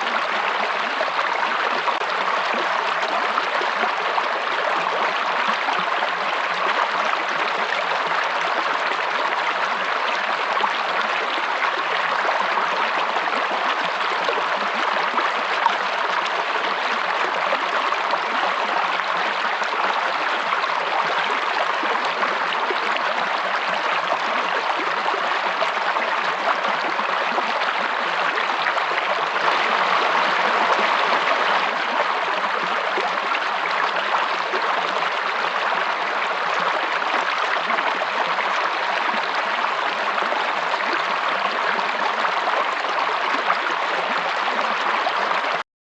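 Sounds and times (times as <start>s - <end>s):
stream water rushing: 26.5s - 36.4s.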